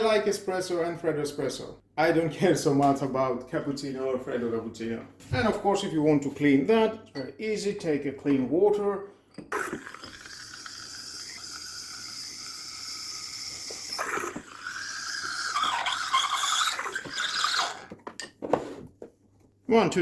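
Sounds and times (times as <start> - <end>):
squealing sputtering gurgle: 9.5 - 18.0.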